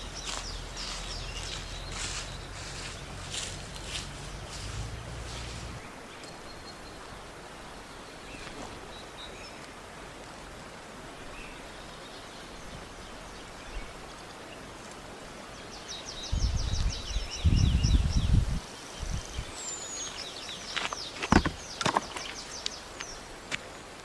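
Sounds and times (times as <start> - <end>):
flowing stream rushing: 0.0 - 16.1.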